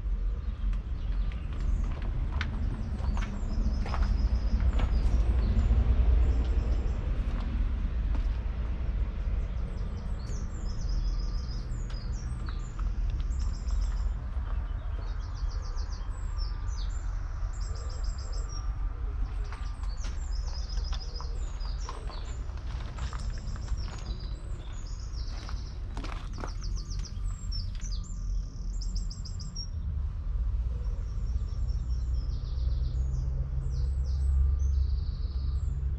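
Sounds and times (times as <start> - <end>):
steady low rumble: 0.0 - 35.9
small birds trilling: 0.1 - 7.6, 9.0 - 29.8.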